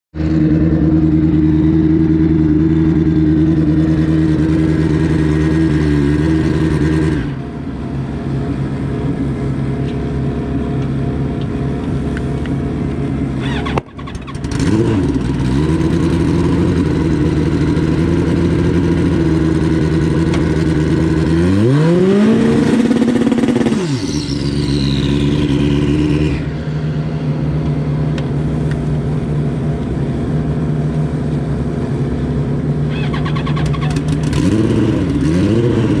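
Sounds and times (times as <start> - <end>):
motorcycle engine revving: 0.2 - 7.6, 13.2 - 30.9, 32.7 - 36.0
motorcycle engines idling loudly: 7.4 - 21.3, 26.8 - 34.4.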